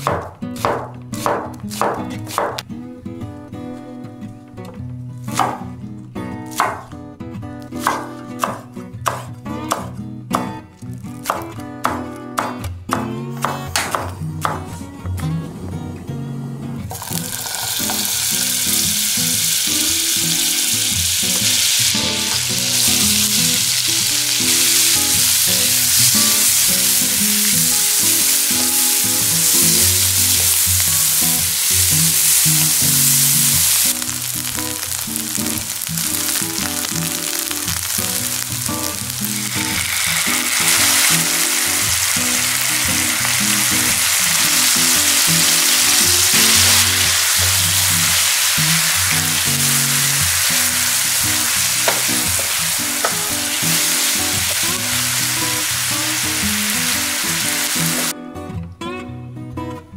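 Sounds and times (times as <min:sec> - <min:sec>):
onions sizzling in a frying pan: 0:16.9 - 0:58.1.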